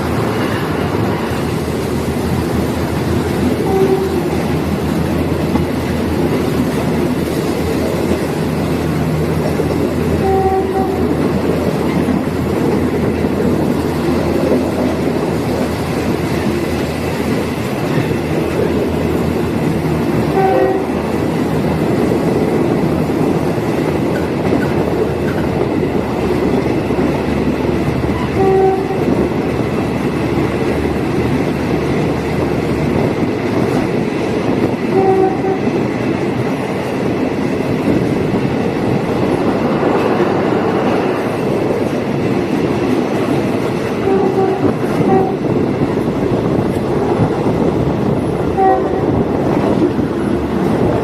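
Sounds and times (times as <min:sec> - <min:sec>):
train engine and wheels rumbling: 0:00.0 - 0:51.0.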